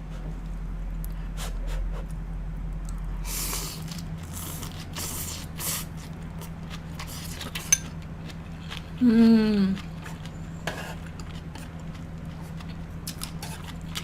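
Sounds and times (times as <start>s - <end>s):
steady low hum: 0.0s - 14.0s
person humming mm: 9.0s - 9.8s
crunchy chewing: 9.8s - 14.0s.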